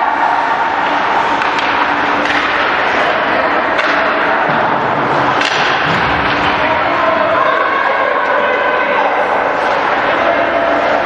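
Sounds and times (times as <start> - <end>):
ice hockey rink noise: 0.0 - 11.0
puck and sticks knocking: 0.8 - 6.6.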